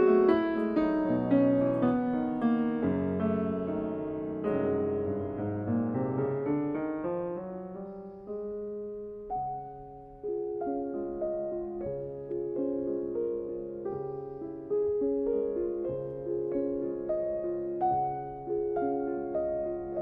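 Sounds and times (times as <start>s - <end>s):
slow solo piano melody: 0.0s - 20.0s.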